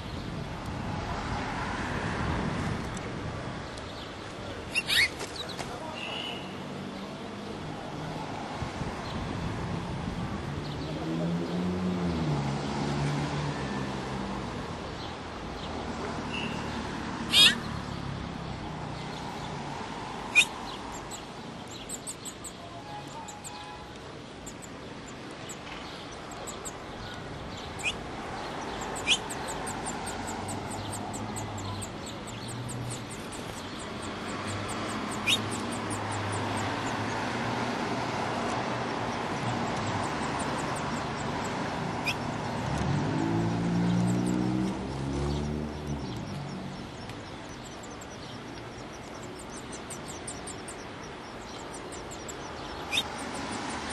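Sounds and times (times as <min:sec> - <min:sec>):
small birds chirping: 0:03.6 - 0:07.3, 0:15.0 - 0:53.9.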